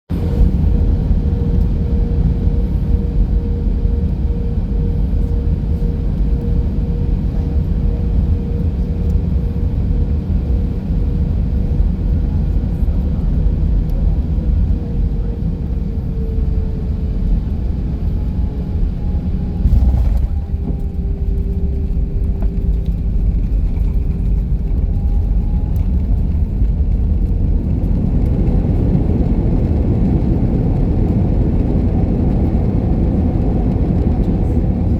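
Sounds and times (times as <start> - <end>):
airliner cabin engine rumble: 0.1 - 34.9
steady hum: 19.3 - 23.5.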